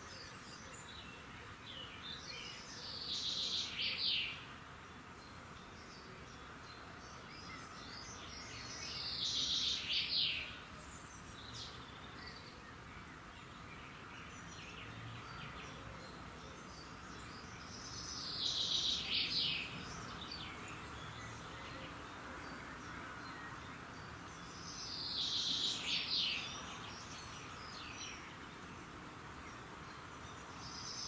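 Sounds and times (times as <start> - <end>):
bird singing loud song: 0.0 - 31.0.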